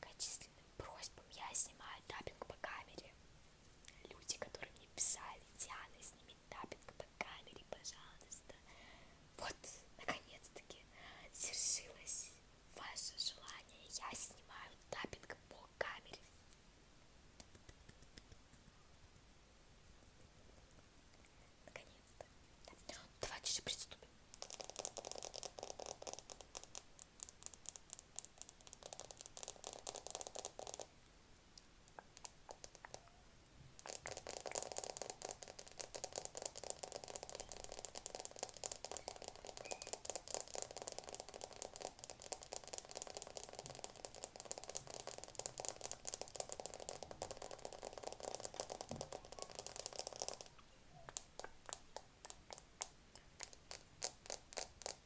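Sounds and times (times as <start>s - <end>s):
fast tapping on a camera: 24.3s - 30.9s, 33.8s - 55.0s.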